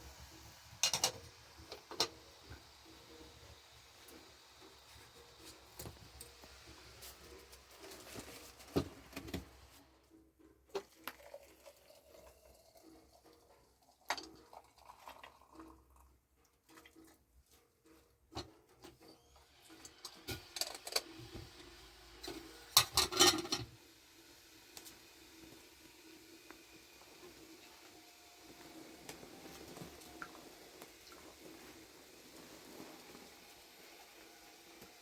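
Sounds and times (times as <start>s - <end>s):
objects knocking and clattering: 0.8s - 2.2s, 22.3s - 23.8s.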